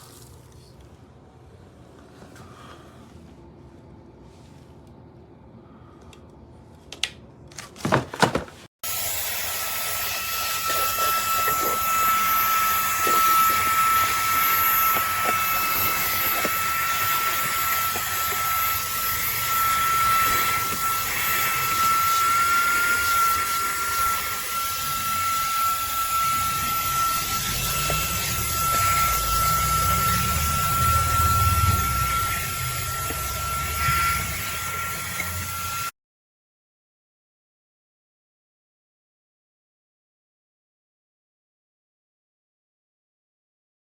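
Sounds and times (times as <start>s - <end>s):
handheld vacuum running: 8.2s - 35.9s.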